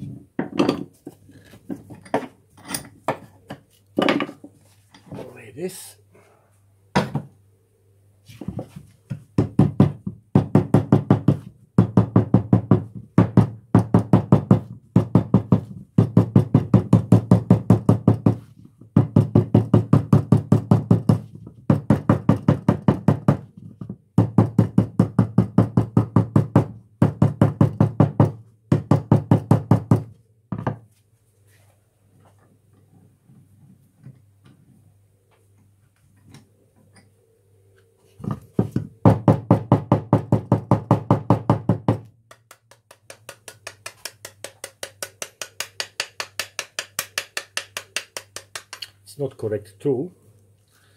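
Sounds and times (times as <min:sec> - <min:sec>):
hammer tapping sheet lead: 0:42.3 - 0:48.8.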